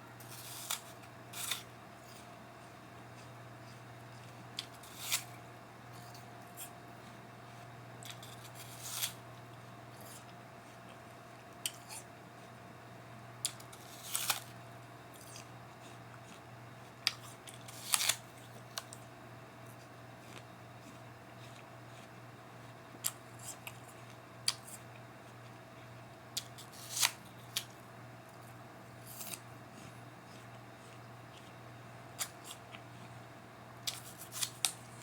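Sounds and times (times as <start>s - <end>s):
apple being chewed: 0.1s - 12.8s, 13.4s - 35.0s.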